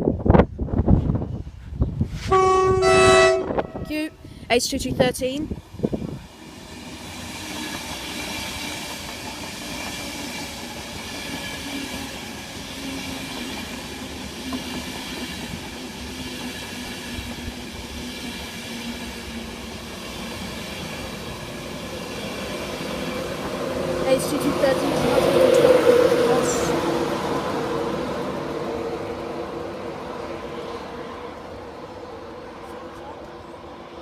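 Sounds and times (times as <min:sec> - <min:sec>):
train wheels rumbling on rails: 0:03.4 - 0:34.0
electric train whine: 0:05.5 - 0:34.0.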